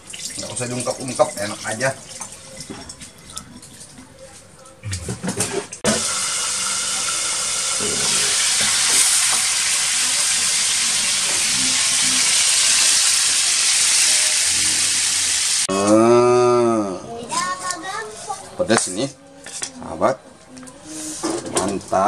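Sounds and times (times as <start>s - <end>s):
frying in hot oil sizzling: 0.0s - 3.8s, 5.9s - 15.7s.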